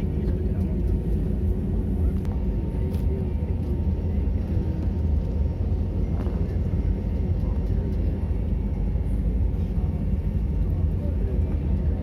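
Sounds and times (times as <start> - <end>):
airliner cabin rumble: 0.0 - 12.0
jet engines idling: 0.0 - 12.0.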